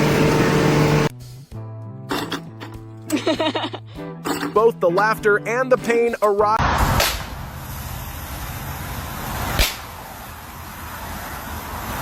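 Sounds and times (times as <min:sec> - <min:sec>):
loud rushing noise with hum: 0:00.0 - 0:01.1, 0:06.6 - 0:12.0.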